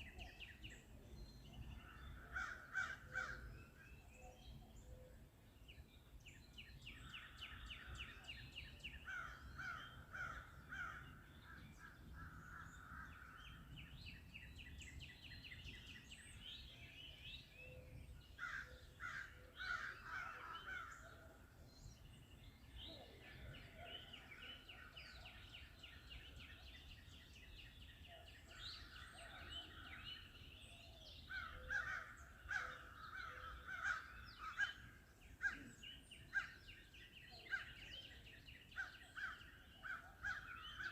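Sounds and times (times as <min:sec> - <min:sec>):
birds singing and calling: 0:00.0 - 0:40.9.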